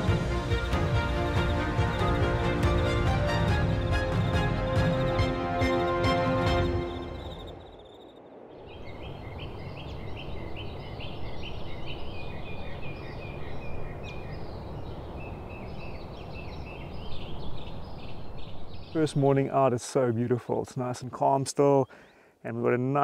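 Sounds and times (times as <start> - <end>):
bird calling high notes: 0.0 - 10.0
outdoor background noise: 0.0 - 23.0.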